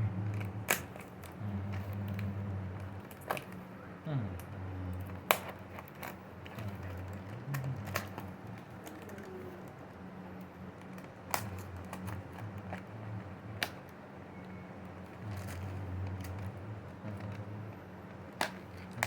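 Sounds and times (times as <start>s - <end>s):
steady low hum: 0.0s - 19.0s
plastic items clicking and tapping: 5.0s - 9.8s, 10.8s - 12.9s, 18.1s - 19.0s.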